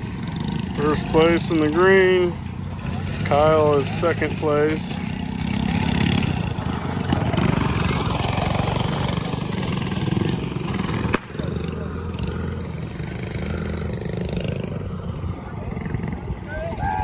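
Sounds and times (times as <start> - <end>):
mini bike engines running: 0.0 - 17.0.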